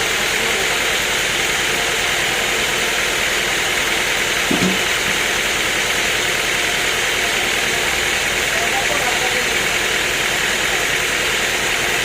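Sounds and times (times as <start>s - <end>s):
sawmill machinery running: 0.0s - 12.0s
short knock: 4.5s - 4.9s.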